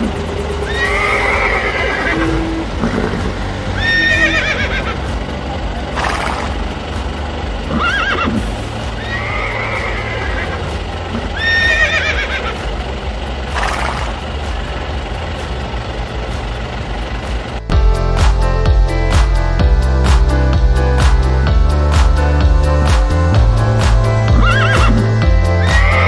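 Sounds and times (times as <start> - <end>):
steady low hum: 0.0 - 25.6
horse neighing: 0.7 - 5.0, 7.7 - 8.4, 9.0 - 10.6, 11.3 - 12.6, 24.3 - 26.0.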